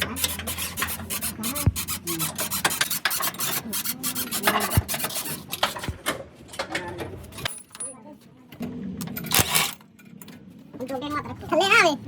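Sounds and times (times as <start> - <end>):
hand tools scraping and clicking: 0.0 - 7.6.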